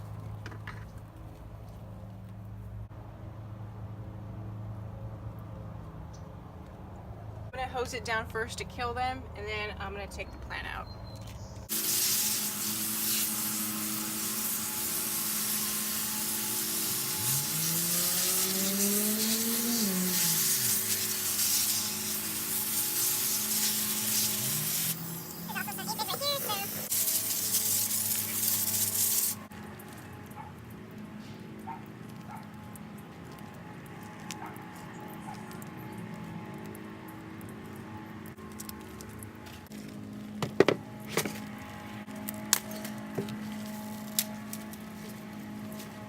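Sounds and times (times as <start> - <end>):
hose nozzle spraying water: 11.7 - 29.5.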